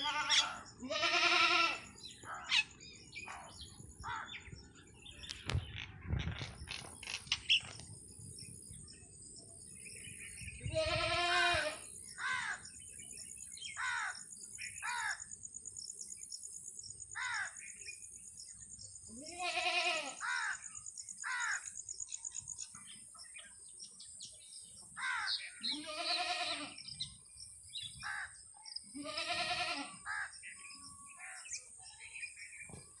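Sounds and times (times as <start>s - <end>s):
loud drawn-out bird calls: 0.0s - 4.5s, 10.6s - 12.8s, 13.7s - 15.4s, 17.1s - 17.8s, 19.2s - 21.8s, 24.9s - 27.2s, 27.8s - 31.7s
birds chirping: 0.0s - 33.0s.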